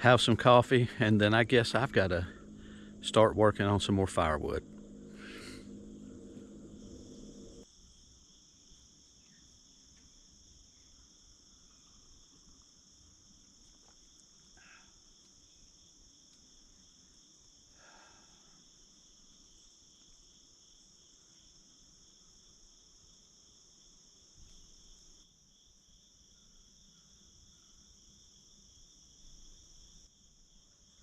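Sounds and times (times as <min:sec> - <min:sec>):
faint short calls: 0:00.0 - 0:07.6
low hum: 0:00.0 - 0:07.6
insects trilling: 0:00.0 - 0:31.0.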